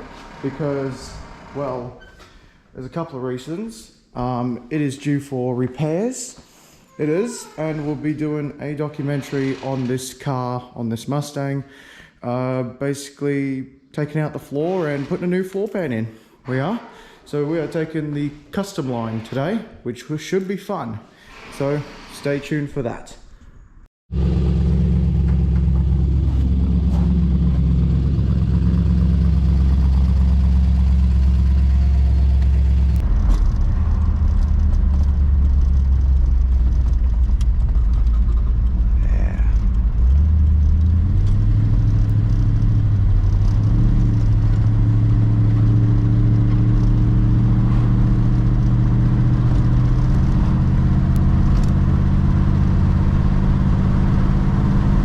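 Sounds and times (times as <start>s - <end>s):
car engine running: 24.1s - 55.0s.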